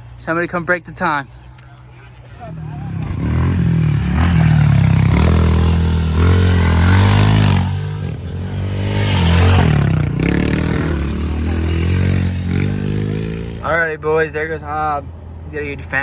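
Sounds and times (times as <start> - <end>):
pit bike engine revving: 2.5 - 13.7.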